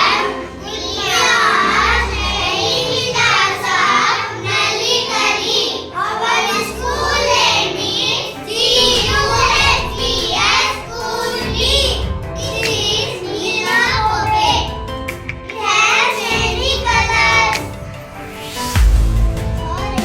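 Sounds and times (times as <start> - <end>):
child singing: 0.0 - 14.8, 15.5 - 17.8
backing music with pulsing beat: 13.8 - 20.0.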